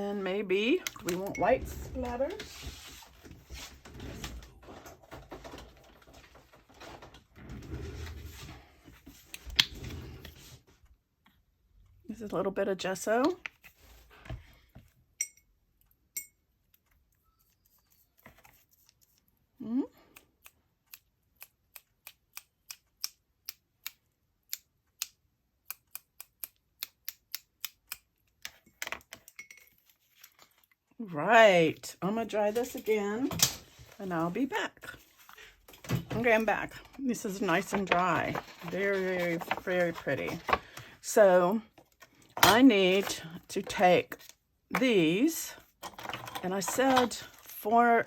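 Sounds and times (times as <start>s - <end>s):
rustle of handling: 37.5s - 40.9s.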